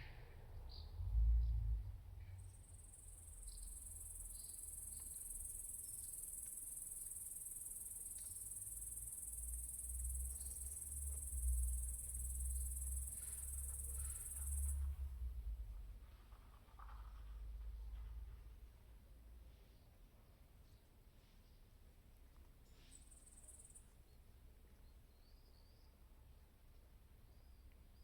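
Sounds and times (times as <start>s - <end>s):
low wind rumble: 0.0s - 2.4s
faint bird chirps: 2.2s - 15.0s.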